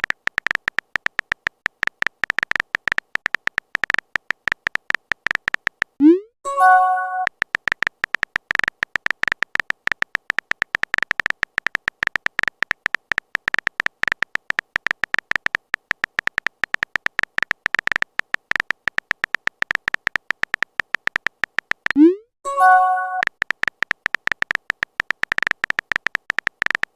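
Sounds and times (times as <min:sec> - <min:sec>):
clicky typing beeps: 0:03.8 - 0:26.9
message sent chime: 0:06.0 - 0:07.3, 0:22.0 - 0:23.3.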